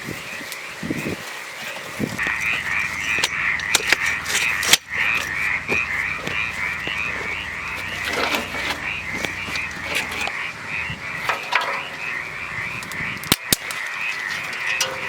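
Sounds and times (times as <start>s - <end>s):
animal chorus of high calls: 0.0s - 15.0s
sharp clicks: 12.8s - 15.0s.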